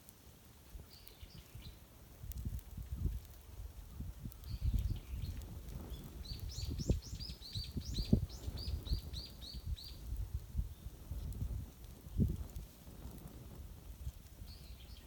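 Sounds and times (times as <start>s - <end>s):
small bird chirping: 4.3s - 10.0s.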